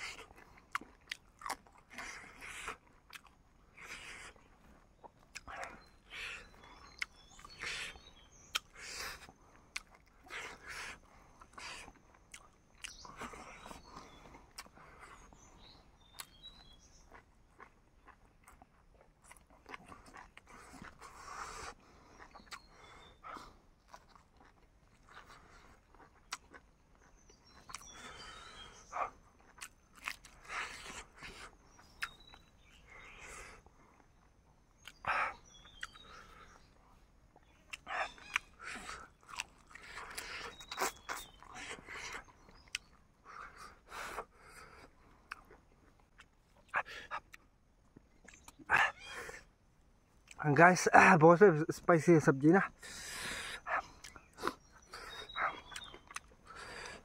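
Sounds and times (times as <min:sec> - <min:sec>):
person chewing and crunching: 0:00.0 - 0:49.5, 0:50.2 - 0:51.2, 0:52.5 - 0:57.0.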